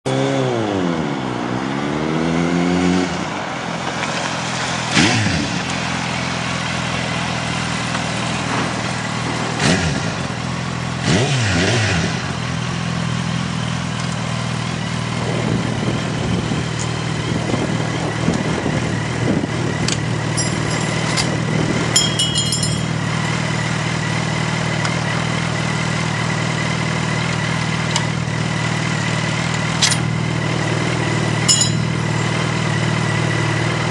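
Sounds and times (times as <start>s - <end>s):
motorcycle engine idling: 12.5s - 33.9s
motorcycle throttle blips: 19.8s - 23.3s, 31.3s - 32.6s.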